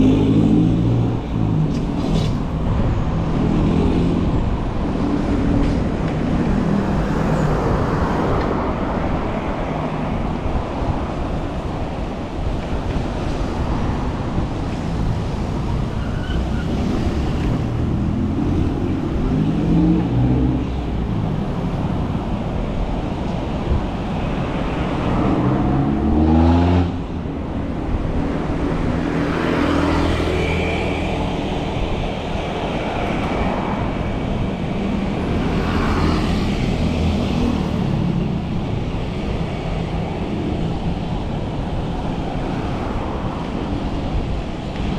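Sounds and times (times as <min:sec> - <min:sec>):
road traffic passing: 0:00.0 - 0:44.9
engines accelerating: 0:14.9 - 0:22.5.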